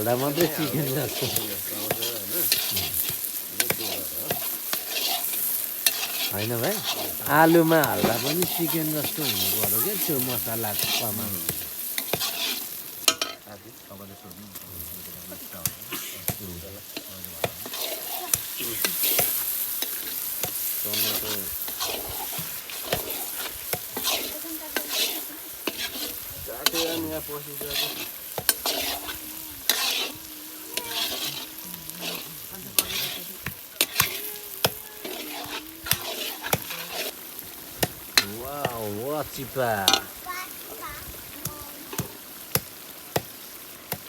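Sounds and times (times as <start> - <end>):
ladle scraping a pan: 0.0 - 13.5, 14.8 - 40.2
chicken sizzling in a pan: 0.0 - 44.0.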